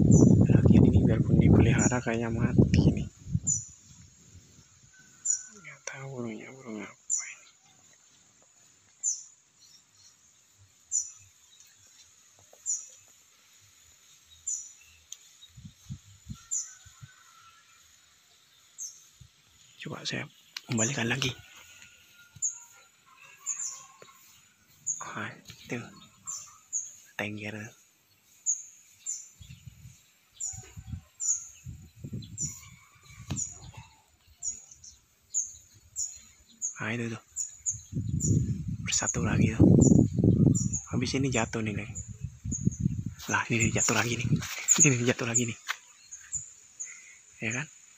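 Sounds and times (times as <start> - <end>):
small bird chirping: 0.0 - 17.5, 18.4 - 47.7
microphone handling rumble: 37.9 - 45.1.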